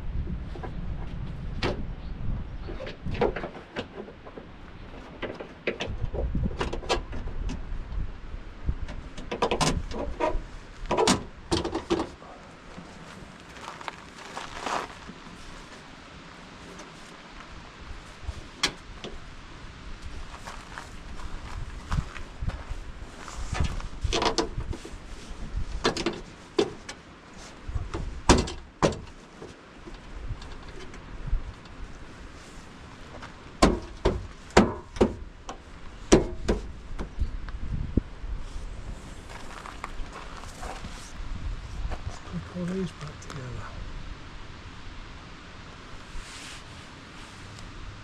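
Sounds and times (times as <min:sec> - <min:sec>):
low rumble: 0:00.0 - 0:02.8
knocks and clicks of handwork: 0:33.6 - 0:35.2, 0:36.1 - 0:37.1.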